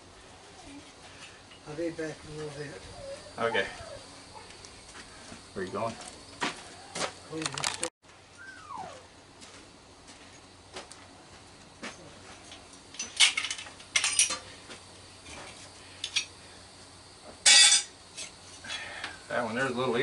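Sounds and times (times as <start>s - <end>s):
metal tools and parts clinking: 12.4s - 14.5s, 15.2s - 16.4s, 17.4s - 18.8s.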